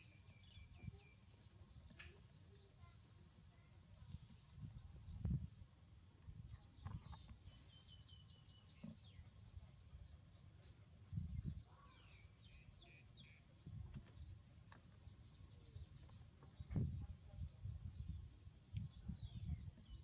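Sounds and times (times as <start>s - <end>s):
faint bird chirps: 0.0s - 20.0s.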